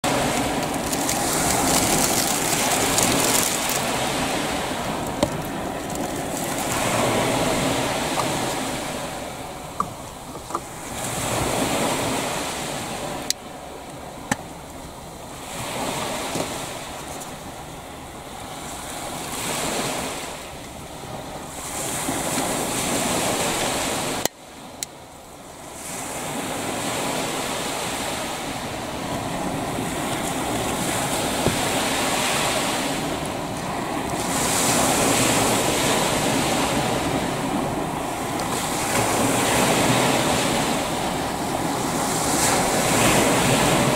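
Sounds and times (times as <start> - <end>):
waves washing onto shore: 0.0 - 43.9
wind on microphone: 25.7 - 43.9.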